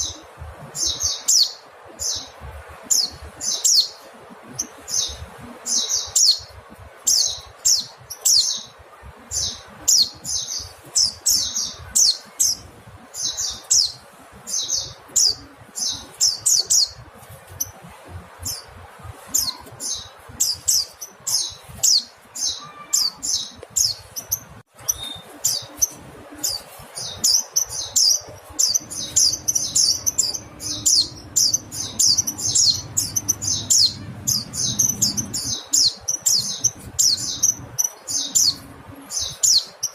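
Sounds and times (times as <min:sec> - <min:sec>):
bird high-pitched calls: 0:18.4 - 0:39.9.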